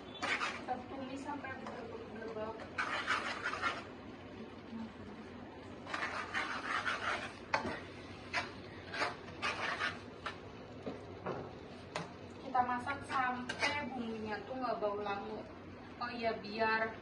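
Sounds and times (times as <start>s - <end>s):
spatula scraping a pan: 0.0s - 0.9s, 2.5s - 3.9s, 5.8s - 10.4s, 12.9s - 14.4s
paste frying in a pan: 0.0s - 4.2s, 5.5s - 10.6s.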